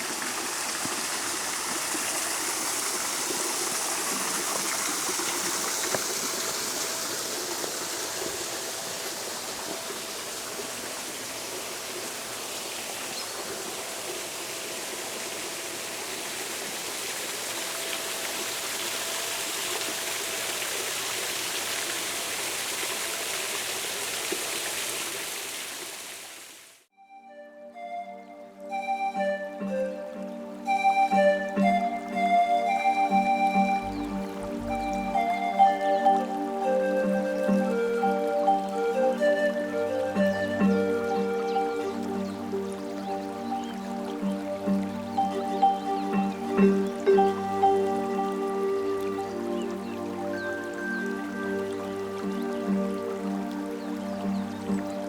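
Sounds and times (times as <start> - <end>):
stream water flowing: 0.0 - 55.0.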